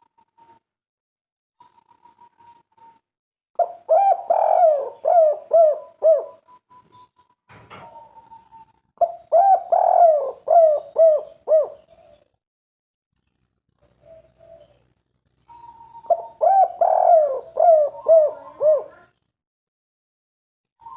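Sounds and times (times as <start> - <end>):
dove cooing: 3.6 - 6.6, 7.7 - 12.3, 13.9 - 14.9, 15.5 - 19.1.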